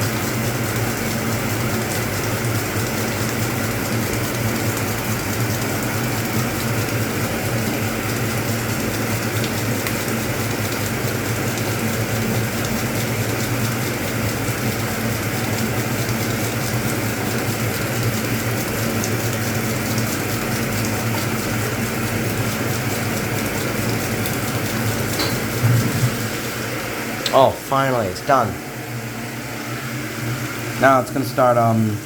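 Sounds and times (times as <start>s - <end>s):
washing machine humming: 0.0s - 32.0s
splashing water: 16.2s - 26.5s.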